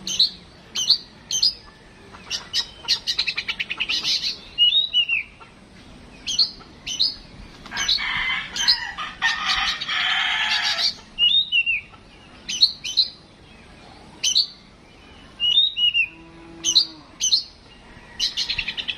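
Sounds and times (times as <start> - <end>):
bird singing whistled notes: 0.0 - 1.7, 2.3 - 5.4, 6.2 - 8.0, 10.7 - 13.3, 14.2 - 18.9.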